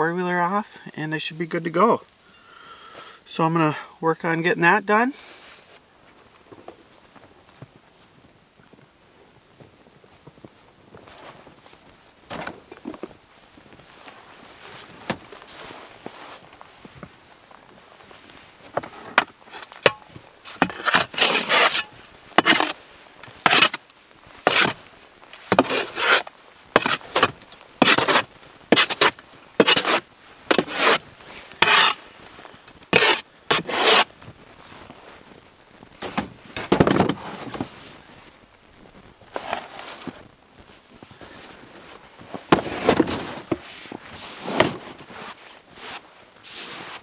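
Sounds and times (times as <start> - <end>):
scraping snow off vehicle: 13.8 - 17.0, 18.1 - 23.8, 24.4 - 35.2, 39.3 - 40.2, 41.1 - 47.0.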